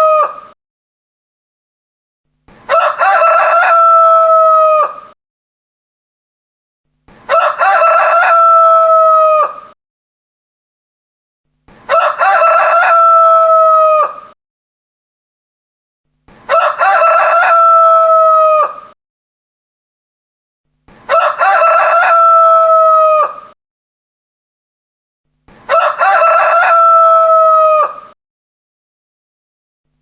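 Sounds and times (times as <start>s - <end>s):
rooster crowing: 0.0s - 0.4s, 2.7s - 5.2s, 7.3s - 9.8s, 11.9s - 14.4s, 16.5s - 19.0s, 21.1s - 23.6s, 25.7s - 28.2s.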